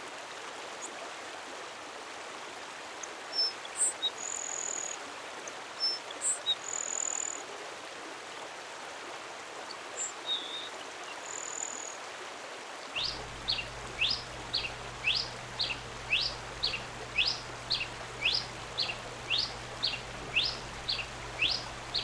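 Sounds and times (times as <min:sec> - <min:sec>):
running water rushing: 0:12.9 - 0:22.0.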